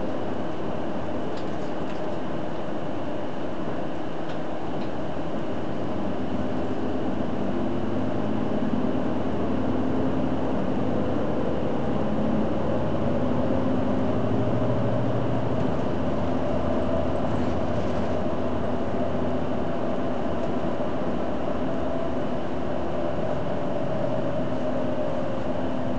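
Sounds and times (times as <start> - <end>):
bus drivetrain running: 0.0 - 25.9
road noise: 6.4 - 25.9.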